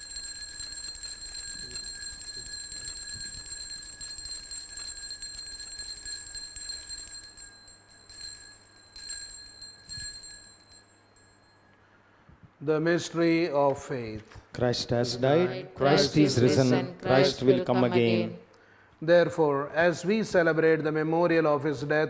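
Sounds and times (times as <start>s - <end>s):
altar bells jingling: 0.0s - 11.6s.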